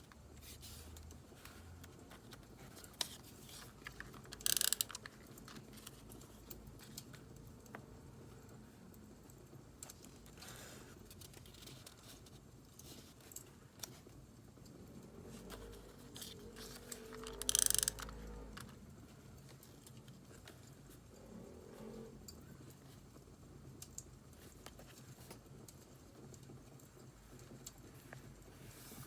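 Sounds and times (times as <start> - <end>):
paper being handled: 0.4 - 7.2.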